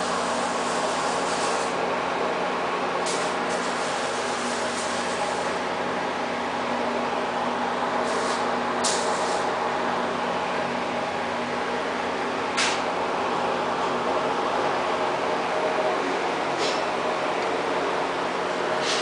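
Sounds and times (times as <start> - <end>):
air hiss bursts: 0.0 - 1.7, 8.0 - 9.5
plasma cutting machine humming: 0.0 - 13.3.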